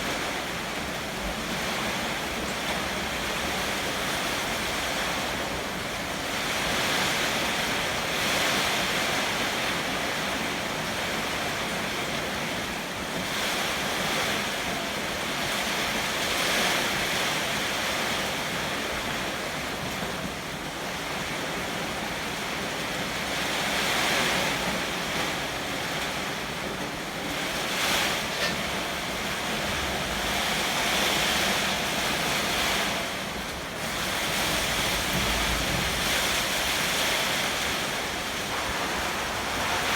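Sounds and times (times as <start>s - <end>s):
heavy rain: 0.0s - 39.9s
strong wind gusts: 20.9s - 39.9s.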